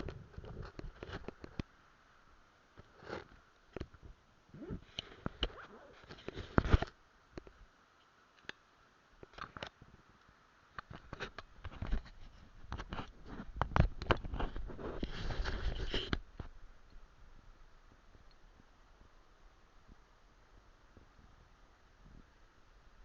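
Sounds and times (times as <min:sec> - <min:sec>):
microphone handling noise: 0:02.8 - 0:06.9, 0:10.9 - 0:16.6.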